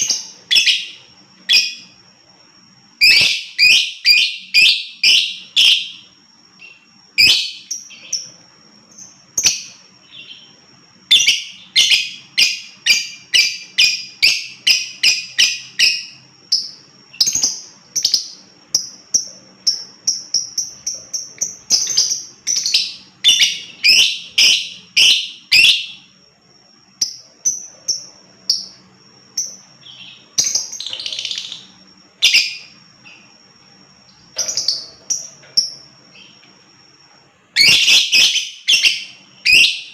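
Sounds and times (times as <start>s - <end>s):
lovebird shrill chirps: 0.0s - 2.0s, 3.0s - 8.3s, 8.9s - 19.0s, 20.1s - 26.1s, 29.4s - 32.8s, 37.5s - 39.9s
thin steady high tone: 0.0s - 39.9s.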